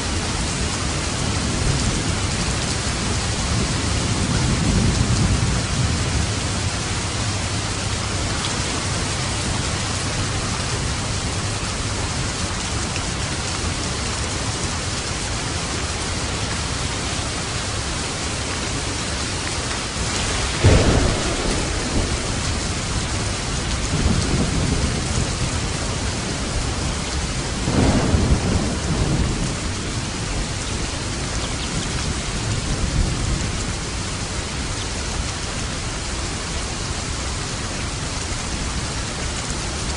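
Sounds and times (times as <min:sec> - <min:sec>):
steady rain falling: 0:00.0 - 0:39.9
thunder claps: 0:19.9 - 0:34.0.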